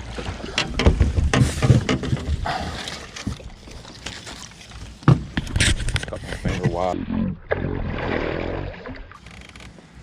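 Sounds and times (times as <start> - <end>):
water splashing: 0.0 - 9.4
knocks and thumps on boat: 0.1 - 3.5, 5.0 - 6.9.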